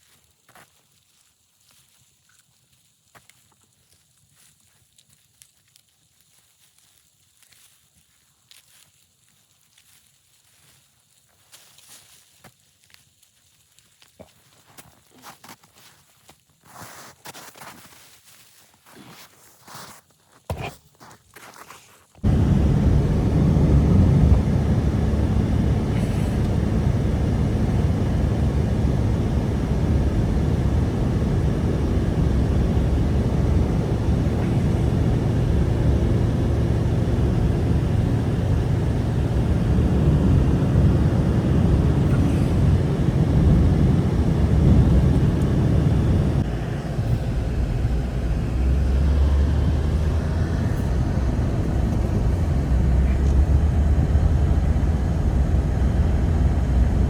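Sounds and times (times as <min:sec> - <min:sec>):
blizzard wind rumbling: 0:22.2 - 0:57.0.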